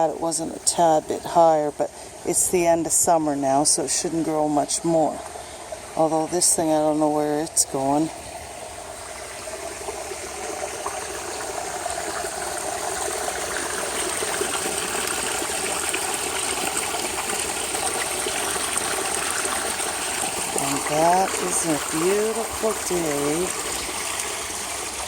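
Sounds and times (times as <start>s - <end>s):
water trickling in a pond: 0.0s - 25.0s.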